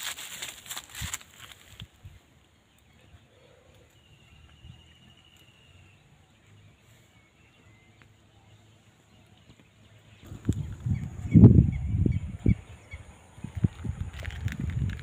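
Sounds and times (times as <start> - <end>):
faint bird chirps: 2.5 - 13.5.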